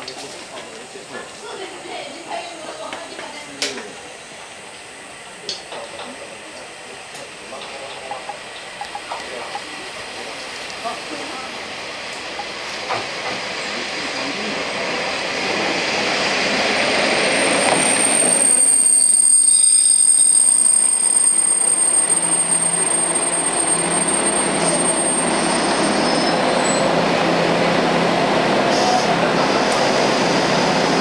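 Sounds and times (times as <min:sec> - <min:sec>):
train running noise: 0:00.0 - 0:31.0
high brake squeal: 0:17.2 - 0:27.0.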